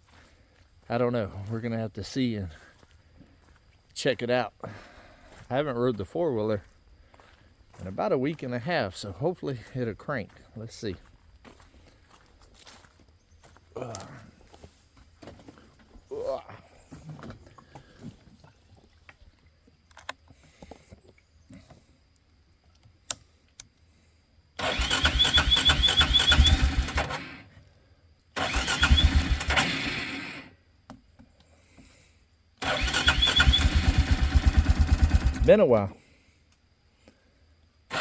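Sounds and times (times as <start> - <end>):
atv engine cranking: 24.6 - 27.5, 28.4 - 30.5, 32.6 - 35.6.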